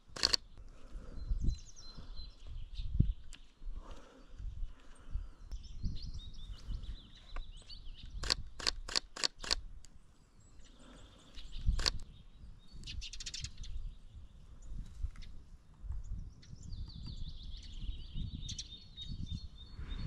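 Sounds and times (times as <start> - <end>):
sharp clicks: 0.0 - 0.5, 7.4 - 10.0, 11.7 - 12.1
small birds singing: 0.0 - 20.0.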